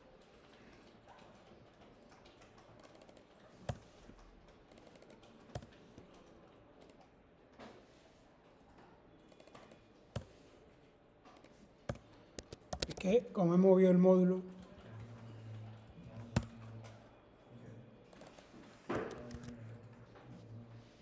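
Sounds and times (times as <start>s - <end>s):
computer keyboard typing: 0.0s - 7.1s, 11.4s - 13.3s.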